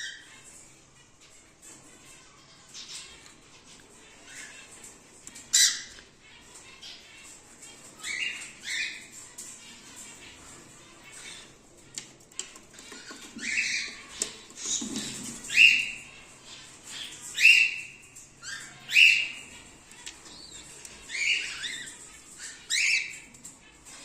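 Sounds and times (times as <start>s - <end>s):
cockatiels squawking: 0.0s - 24.0s.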